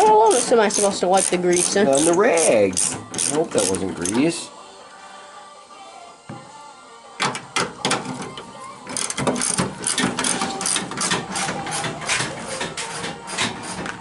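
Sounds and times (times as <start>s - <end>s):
ratchet wrench clicking: 0.3s - 4.2s, 8.9s - 11.8s.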